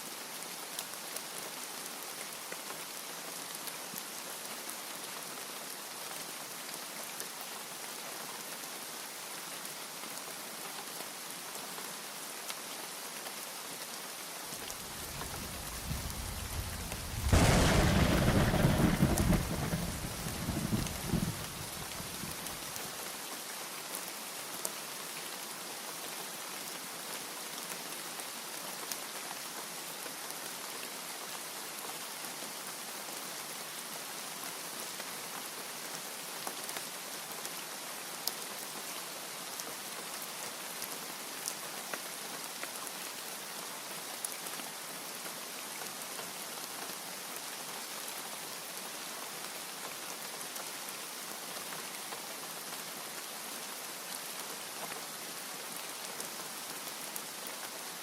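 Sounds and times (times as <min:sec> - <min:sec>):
heavy rain: 0:00.0 - 0:58.0
raindrops ticking: 0:15.0 - 0:22.5.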